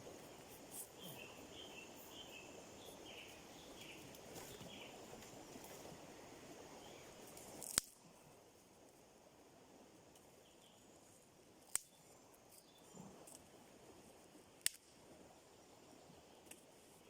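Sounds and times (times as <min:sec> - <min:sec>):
faint outdoor hush: 0:00.0 - 0:17.0
sticks snapping: 0:07.4 - 0:08.0, 0:11.7 - 0:11.9, 0:14.6 - 0:14.9.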